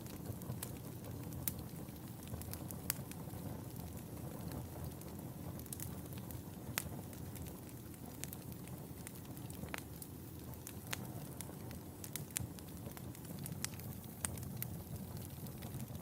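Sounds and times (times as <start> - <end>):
fire crackling in a fireplace: 0.0 - 16.0
sharp pops and snaps of fire: 0.0 - 16.0.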